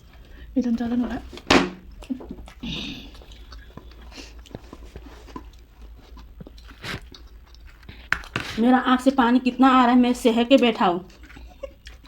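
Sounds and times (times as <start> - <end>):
chewing crunchy snack: 1.9 - 8.6, 10.6 - 12.0.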